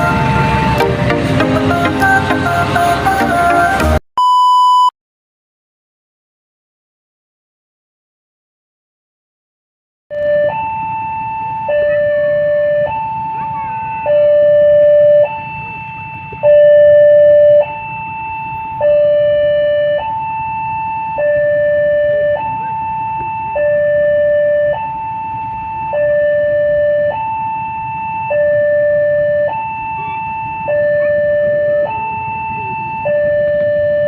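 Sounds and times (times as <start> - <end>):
level crossing two-tone alarm: 0.0 - 2.8, 10.2 - 34.0.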